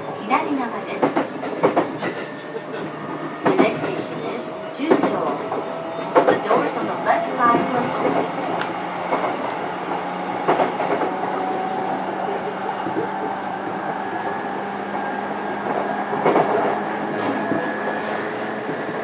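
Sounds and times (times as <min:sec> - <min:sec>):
train running gear hum: 0:00.0 - 0:19.0.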